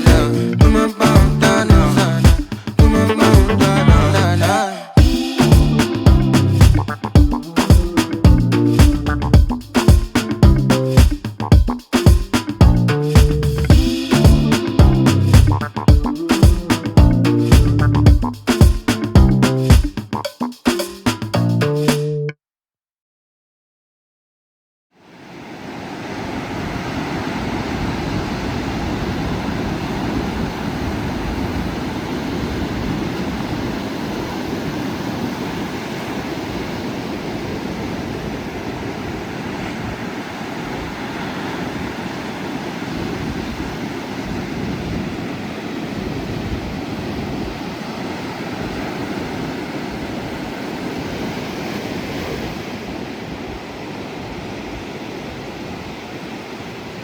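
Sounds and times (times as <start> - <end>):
ocean surf breaking: 0.0 - 17.0, 25.1 - 57.0
wind buffeting microphone: 26.5 - 51.6.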